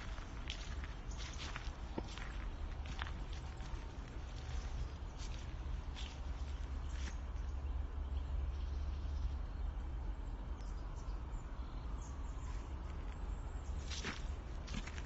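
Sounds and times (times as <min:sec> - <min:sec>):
footsteps crunching on forest path: 0:00.0 - 0:07.5, 0:12.4 - 0:15.0
steady low rumble: 0:00.0 - 0:15.0.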